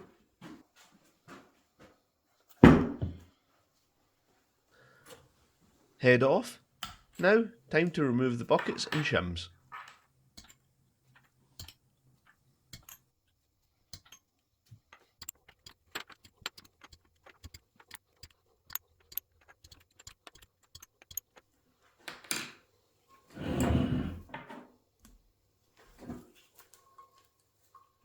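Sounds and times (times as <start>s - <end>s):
light metallic clicks and clinks: 9.8s - 13.1s.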